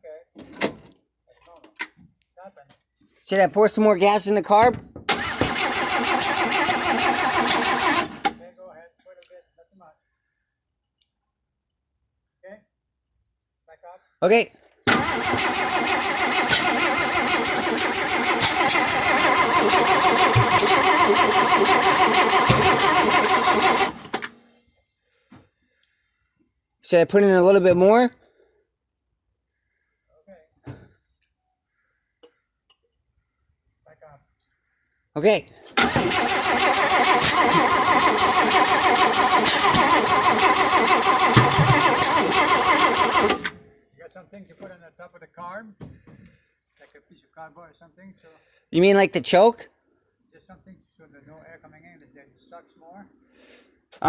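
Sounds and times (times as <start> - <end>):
engine cranking by starter: 3.7 - 8.5, 14.9 - 24.6, 35.7 - 43.8.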